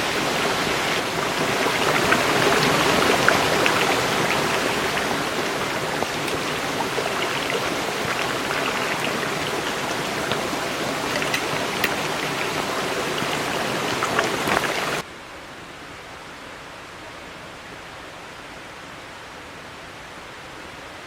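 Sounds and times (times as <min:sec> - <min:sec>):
stream water rushing: 0:00.0 - 0:15.1
soft steady hiss: 0:00.0 - 0:21.0.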